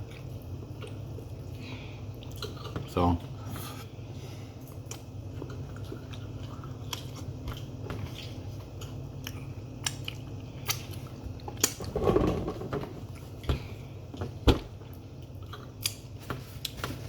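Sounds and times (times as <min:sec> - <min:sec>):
person chewing food: 0:00.0 - 0:03.6, 0:04.6 - 0:11.8, 0:13.1 - 0:16.9.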